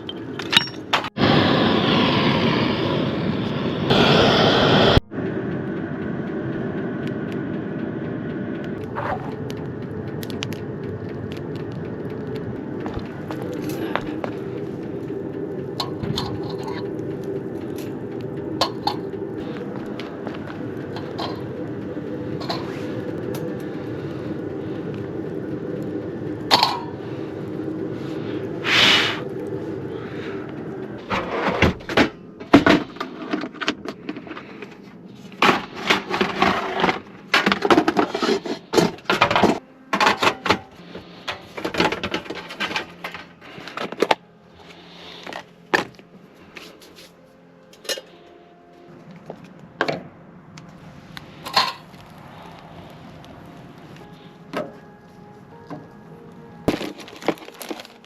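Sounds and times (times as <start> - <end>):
machine hum: 0.0 - 58.0
objects knocking and clattering: 20.9 - 21.5, 35.4 - 40.7, 41.3 - 44.2, 56.7 - 58.0.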